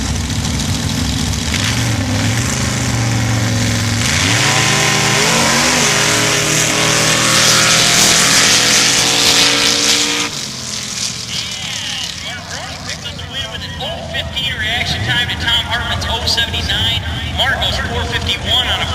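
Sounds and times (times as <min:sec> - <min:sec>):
engine launching at full throttle: 0:00.0 - 0:13.1
truck engines idling: 0:00.0 - 0:18.9.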